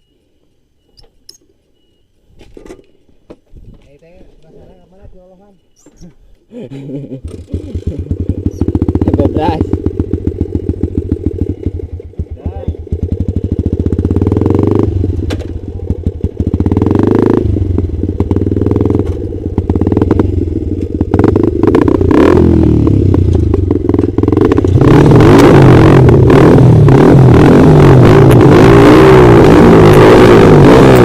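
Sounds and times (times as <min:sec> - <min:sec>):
motorcycle engine revving: 0:07.2 - 0:31.0.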